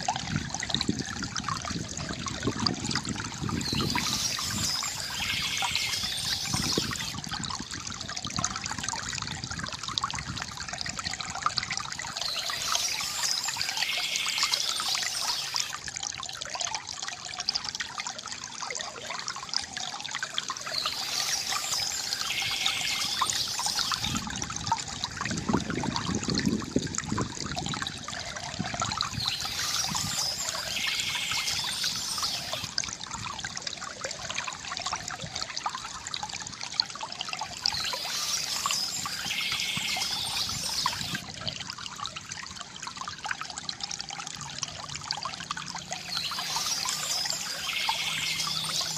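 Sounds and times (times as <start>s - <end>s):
river water gurgling: 0.0s - 48.9s
bird chirping: 3.6s - 7.1s, 12.2s - 15.7s, 20.6s - 24.2s, 29.2s - 32.7s, 37.7s - 41.2s, 46.0s - 48.9s.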